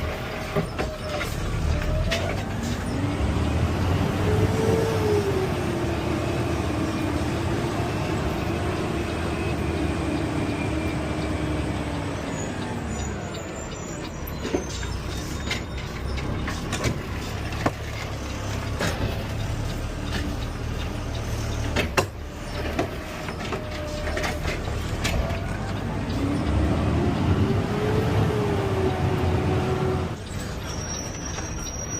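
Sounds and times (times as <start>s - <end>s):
garbage truck engine whining: 0.0s - 31.9s
sharp clicks and knocks: 14.0s - 26.7s.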